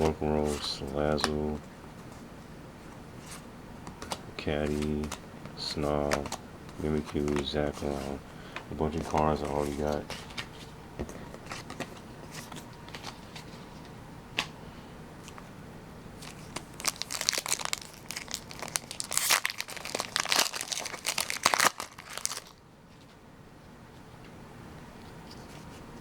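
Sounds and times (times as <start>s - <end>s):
cards clicking: 6.0s - 8.0s
foil wrapper crinkling and tearing: 16.2s - 22.6s.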